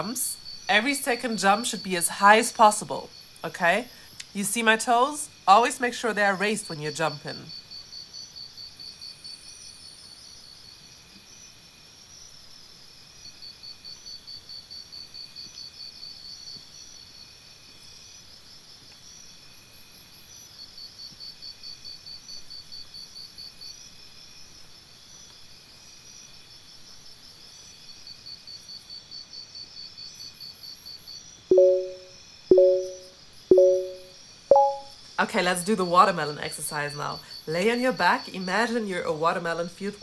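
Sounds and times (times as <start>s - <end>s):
crickets chirping in pulses: 31.5s - 38.9s.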